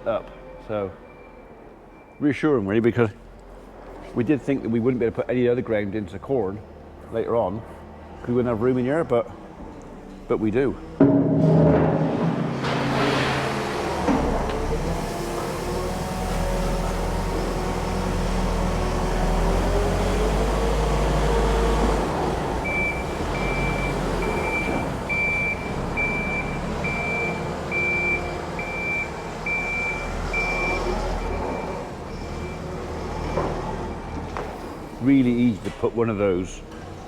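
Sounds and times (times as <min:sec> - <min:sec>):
reversing alarm beeps: 0:00.1 - 0:02.3, 0:22.6 - 0:34.4.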